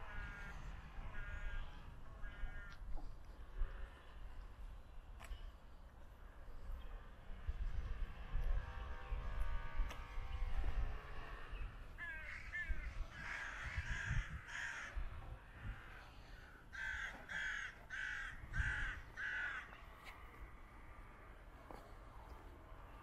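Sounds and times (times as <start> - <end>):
bird calling: 11.5 - 15.0.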